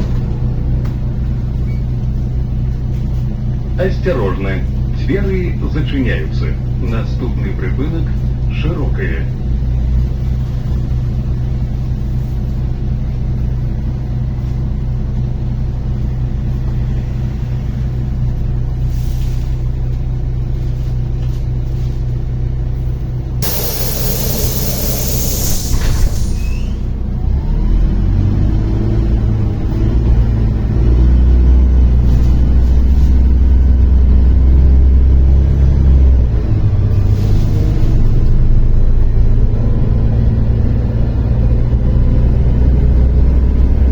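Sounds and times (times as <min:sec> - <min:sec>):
bus diesel engine: 0:00.0 - 0:43.9
pneumatic air hiss: 0:23.4 - 0:26.9.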